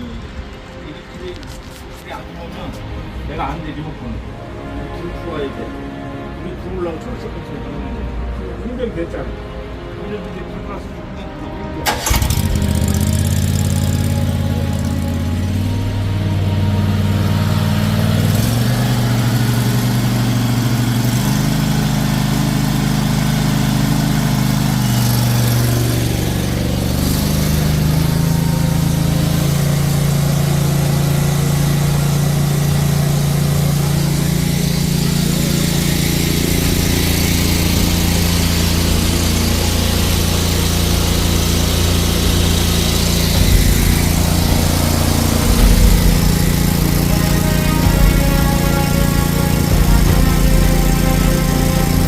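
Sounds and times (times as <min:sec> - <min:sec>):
gasoline engine running: 0:11.8 - 0:52.0.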